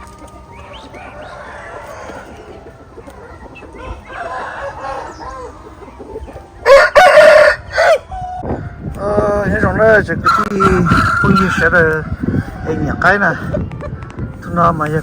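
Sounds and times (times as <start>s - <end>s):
roosters crowing: 0.0s - 8.8s, 9.6s - 13.9s
chickens clucking: 0.0s - 15.0s.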